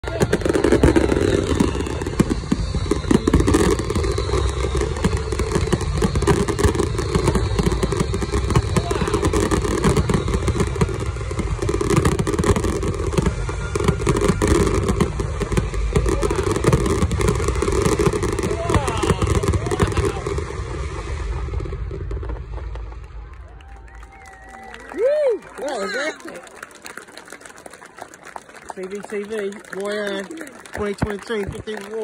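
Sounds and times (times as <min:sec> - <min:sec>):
fireworks bursting and crackling: 0:00.0 - 0:32.0.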